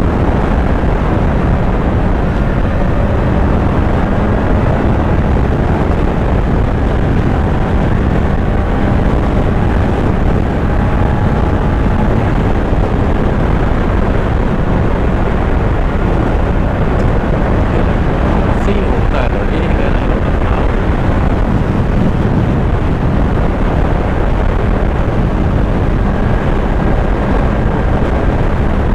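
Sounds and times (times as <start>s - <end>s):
motorcycle engine running: 0.0s - 28.9s
road noise: 0.0s - 28.9s
wind rush: 0.0s - 28.9s.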